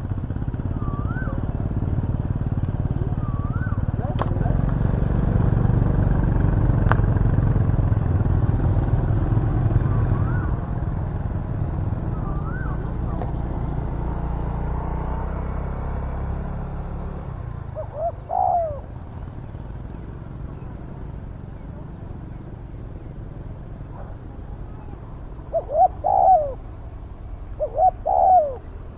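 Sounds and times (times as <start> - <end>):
dove cooing: 0.0 - 15.1, 16.9 - 28.9
vehicle engine rumble: 0.0 - 28.9
faint bird chirps: 0.1 - 4.5, 8.9 - 14.6, 17.5 - 28.9.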